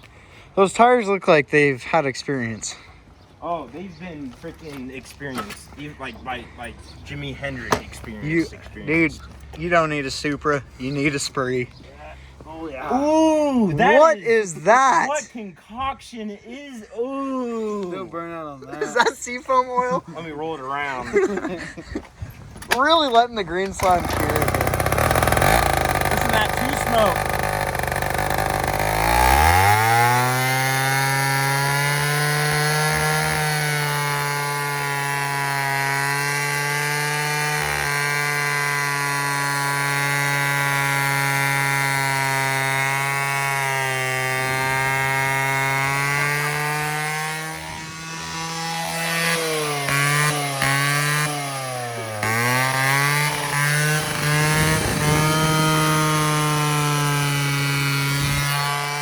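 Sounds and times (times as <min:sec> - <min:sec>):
scooter engine revving: 0:23.7 - 0:59.0.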